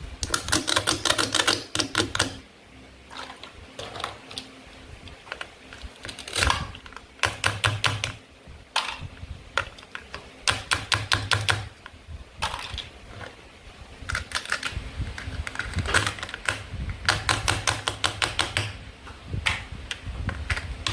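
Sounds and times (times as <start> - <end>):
toy knife clicking through play food: 0.2 - 2.4.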